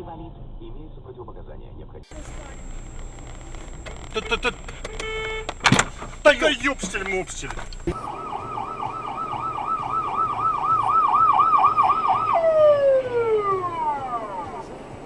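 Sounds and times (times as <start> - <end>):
electronic siren yelping: 7.8 - 14.8.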